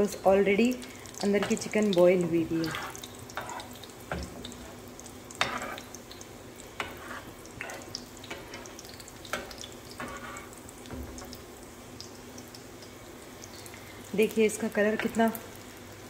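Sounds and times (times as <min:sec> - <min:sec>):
chicken sizzling in oil: 0:00.0 - 0:16.0
spatula scraping a pan: 0:02.6 - 0:04.8, 0:05.4 - 0:06.0, 0:06.8 - 0:11.4.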